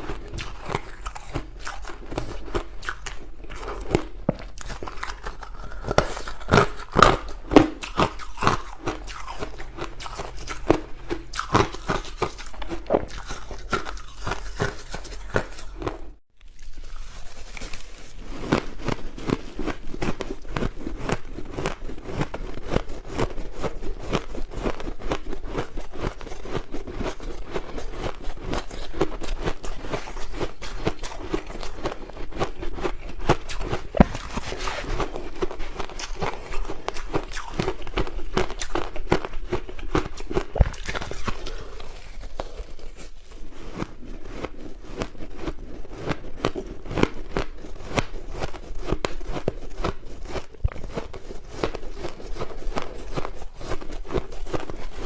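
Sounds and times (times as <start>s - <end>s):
chewing crushed ice: 0.0s - 55.0s.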